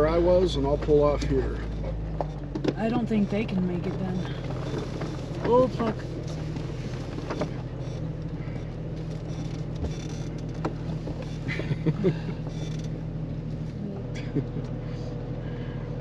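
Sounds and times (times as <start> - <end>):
car engine idling: 0.0 - 16.0
small knocks and clicks: 9.0 - 11.4.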